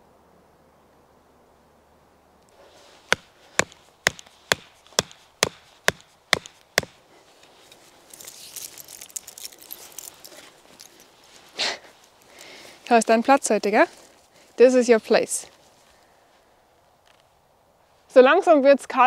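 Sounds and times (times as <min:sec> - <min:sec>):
rustling: 0:02.5 - 0:18.1
wooden peg hammering knocks: 0:03.1 - 0:07.0.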